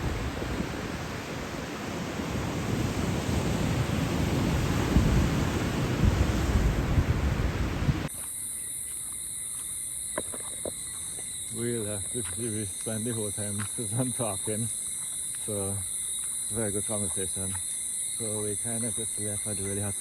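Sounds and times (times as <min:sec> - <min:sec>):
ocean surf breaking: 0:00.0 - 0:08.1
crickets chirring: 0:00.0 - 0:20.0.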